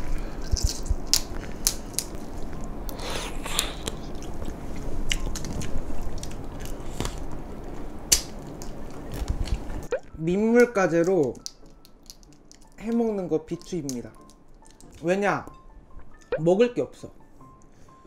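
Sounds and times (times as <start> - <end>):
crunching and chewing: 0.0 - 9.8, 11.0 - 12.9, 13.6 - 15.0
shells cracking: 0.5 - 2.3, 8.1 - 9.3, 10.6 - 15.0.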